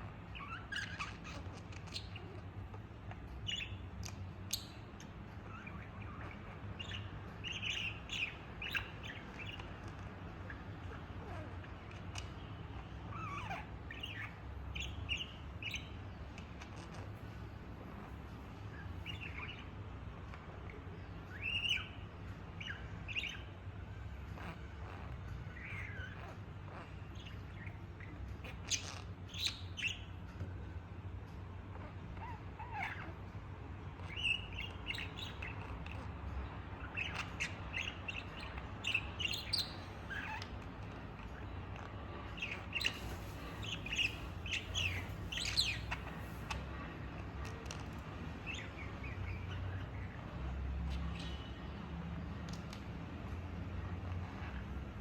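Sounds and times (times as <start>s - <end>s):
budgie chirping: 3.4s - 23.6s, 34.0s - 47.0s.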